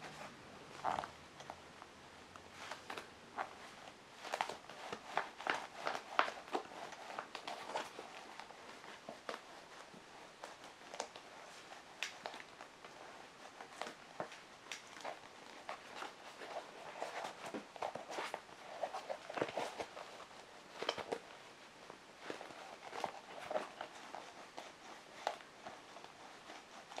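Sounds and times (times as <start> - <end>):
shoe rustling when handled: 2.5 - 27.0.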